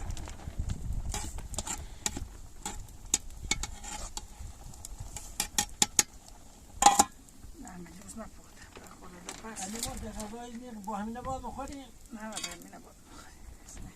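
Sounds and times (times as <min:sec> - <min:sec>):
utensil scraping in cooking pot: 0:00.0 - 0:07.3.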